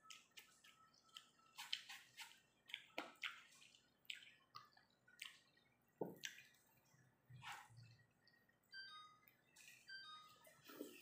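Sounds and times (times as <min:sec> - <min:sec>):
wet chewing and smacking: 0:00.0 - 0:07.1.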